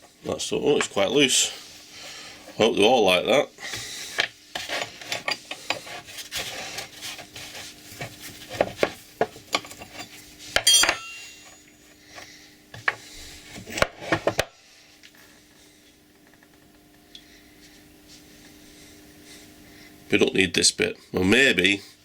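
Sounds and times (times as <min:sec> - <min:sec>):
metal tools clinking and scraping: 0:04.6 - 0:06.5, 0:09.3 - 0:11.7
ringing metallic clink: 0:10.6 - 0:11.4.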